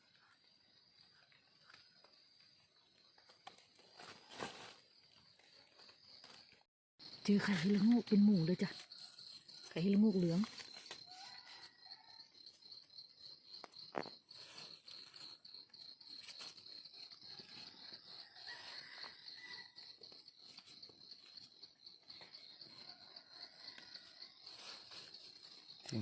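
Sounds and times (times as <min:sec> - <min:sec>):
insect trilling: 0:07.0 - 0:26.0.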